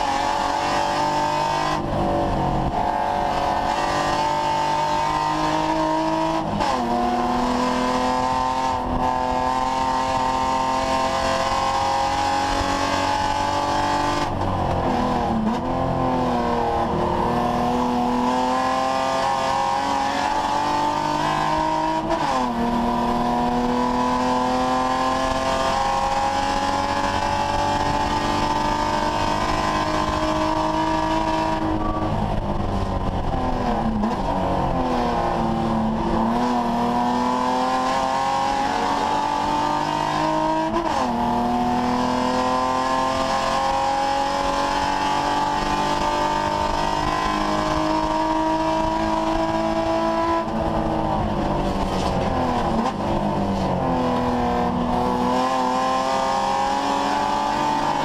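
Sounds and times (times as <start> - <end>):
engine downshifting: 0.0 - 58.0
race car engine revving: 0.0 - 58.0.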